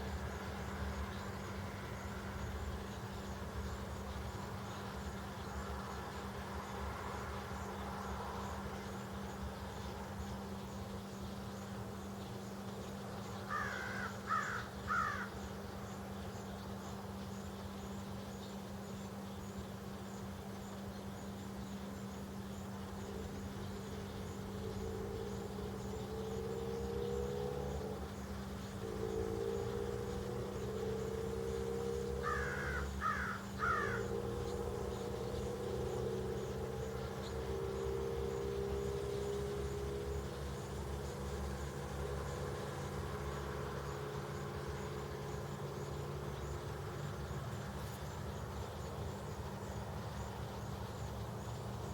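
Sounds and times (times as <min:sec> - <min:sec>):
steady low hum: 0:00.0 - 0:51.9
crow cawing: 0:13.5 - 0:15.4, 0:32.2 - 0:34.1.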